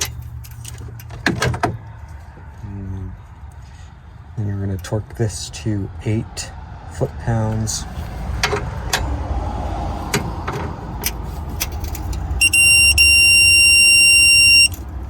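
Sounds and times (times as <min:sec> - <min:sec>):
high electronic beep: 0:12.4 - 0:14.8.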